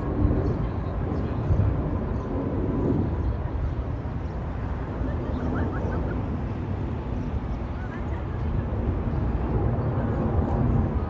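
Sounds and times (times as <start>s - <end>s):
jet engine rumble: 0.0s - 11.0s.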